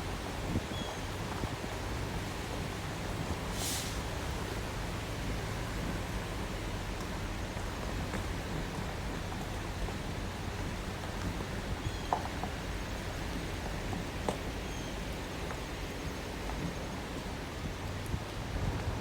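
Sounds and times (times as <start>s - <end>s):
brief high hiss: 3.6s - 4.1s.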